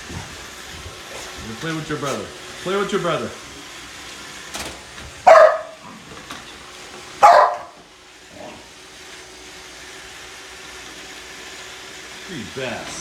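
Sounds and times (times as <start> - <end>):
dog barking: 5.2 - 5.9, 7.2 - 7.8.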